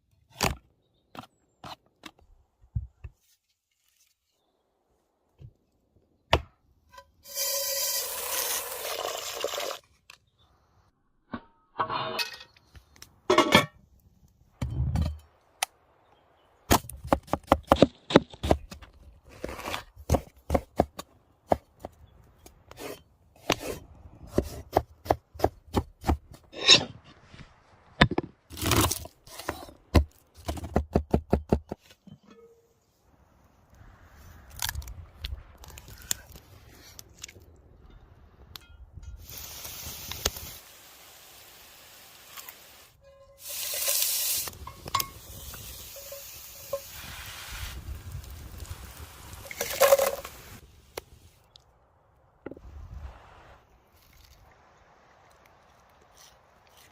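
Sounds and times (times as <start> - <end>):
food sizzling hiss: 39.2 - 50.7.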